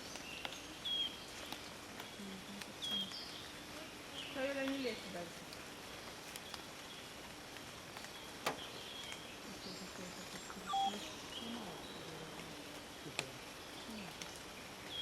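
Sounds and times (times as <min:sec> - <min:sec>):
low background hiss: 0:00.0 - 0:15.0.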